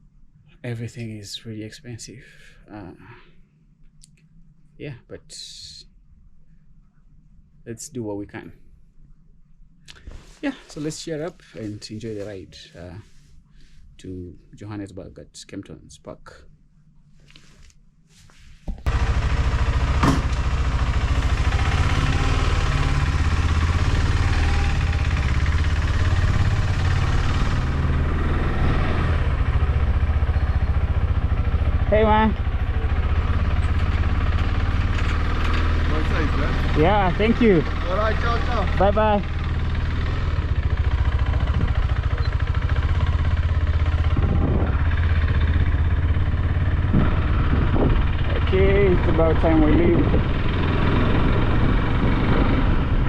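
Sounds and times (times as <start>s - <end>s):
motorcycle engine running: 18.8s - 53.0s.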